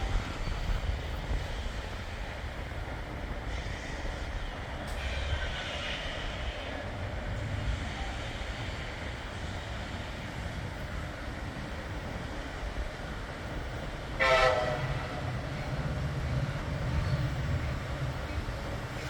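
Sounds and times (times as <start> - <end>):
freight train rumbling: 0.0 - 19.0.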